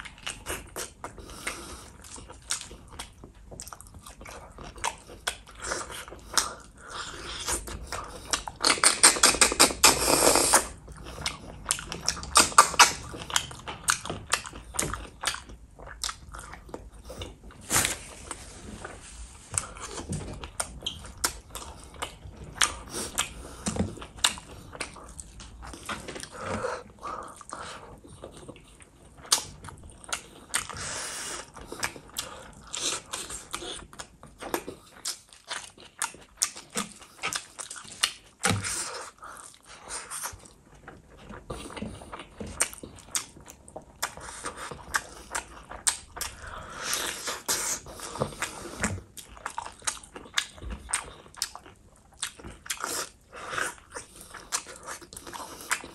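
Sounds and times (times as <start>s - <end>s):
chewing and lip-smacking: 0.0s - 55.9s
fingers being licked: 8.3s - 10.8s, 12.0s - 14.0s.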